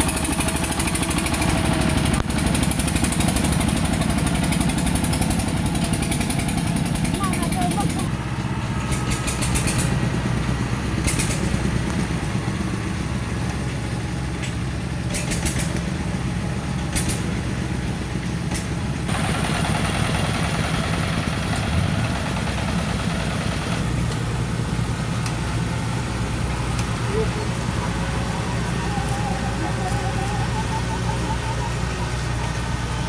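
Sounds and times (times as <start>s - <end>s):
high rattling bursts: 0.0s - 8.1s, 18.5s - 33.0s
harvester engine running: 0.0s - 33.0s
loud hiss: 19.1s - 33.0s.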